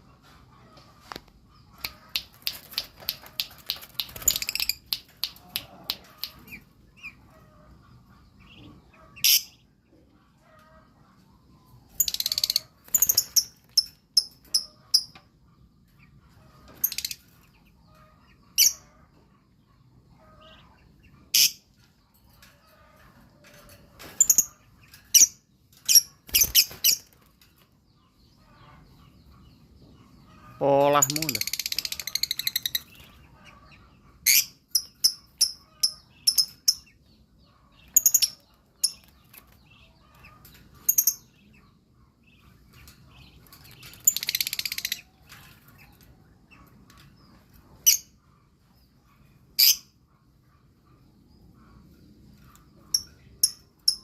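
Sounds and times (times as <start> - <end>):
lovebird chirping: 52.8 - 54.0.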